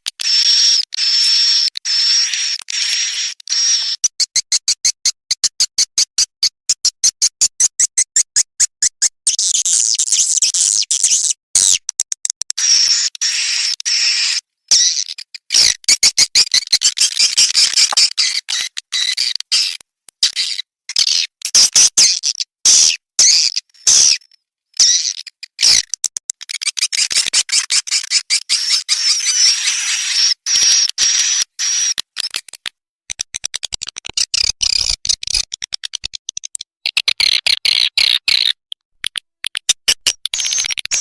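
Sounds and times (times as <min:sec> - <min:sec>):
sharp chirp-clicks: 0:00.0 - 0:41.0
high twittering chirps: 0:12.6 - 0:21.3, 0:26.5 - 0:32.0.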